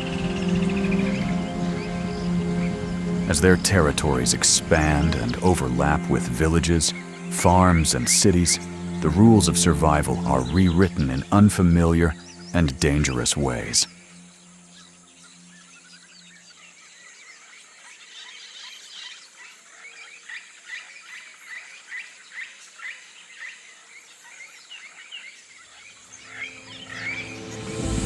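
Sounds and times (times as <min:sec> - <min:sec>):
high insect-like hiss: 0:00.0 - 0:19.0, 0:25.9 - 0:28.0.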